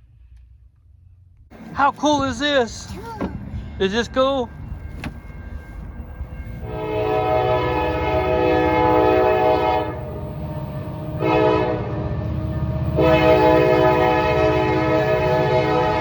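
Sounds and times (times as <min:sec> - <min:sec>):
diesel locomotive engine rumbling: 0:00.0 - 0:16.0
locomotive air horn blasts: 0:06.3 - 0:16.0.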